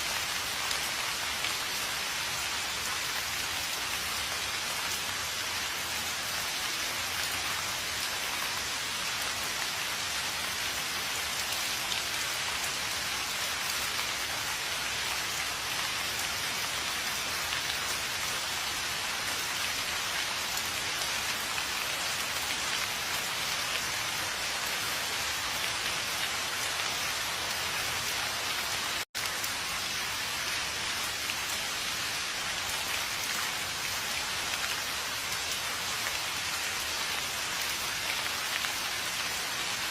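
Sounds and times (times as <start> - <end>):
rain falling on a surface: 0.0 - 39.9.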